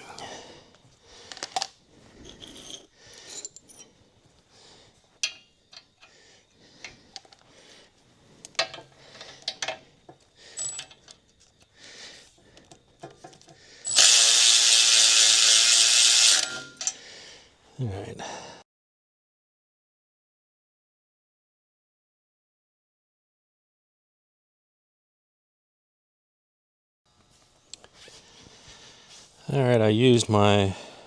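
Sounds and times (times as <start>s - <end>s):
hand ratchet clicking: 13.9s - 17.0s
pneumatic tool running: 13.9s - 17.0s.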